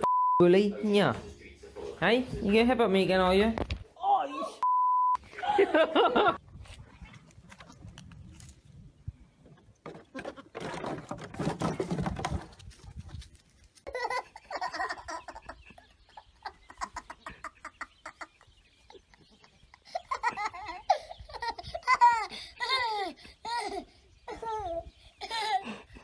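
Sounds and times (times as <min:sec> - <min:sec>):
people laughing: 0:05.3 - 0:06.4, 0:13.9 - 0:23.8.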